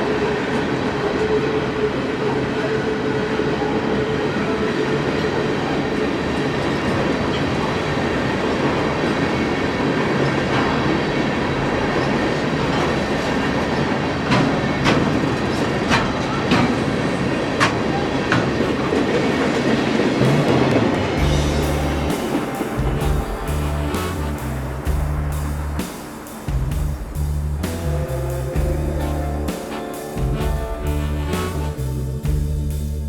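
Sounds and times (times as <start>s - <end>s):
train rumbling on rails: 0.0s - 33.0s.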